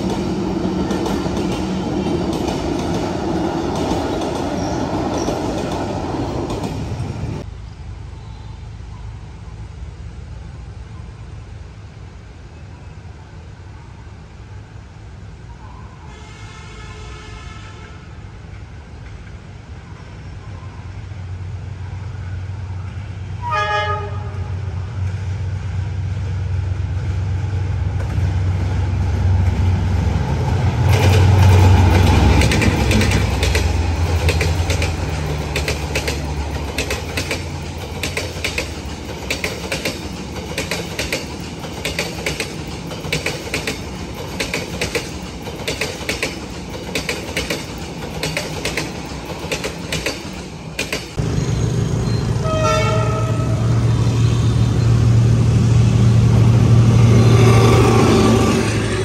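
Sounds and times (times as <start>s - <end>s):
train wheels clicking on rail joints: 0.0s - 7.5s, 27.8s - 51.5s
locomotive horn blast: 16.1s - 18.1s, 23.4s - 24.6s, 51.3s - 54.8s
locomotive engine drone: 24.1s - 59.0s.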